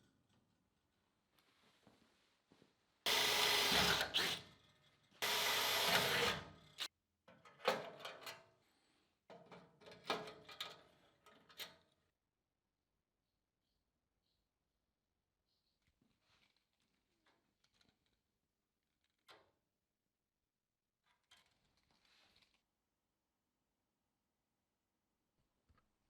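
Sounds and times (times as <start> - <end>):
handheld power tool bursts: 3.1 - 4.4, 5.2 - 6.4.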